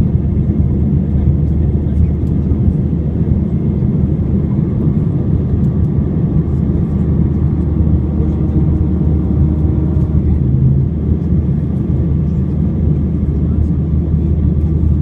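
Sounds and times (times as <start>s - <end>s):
aircraft engines rumbling in cabin: 0.0s - 15.0s.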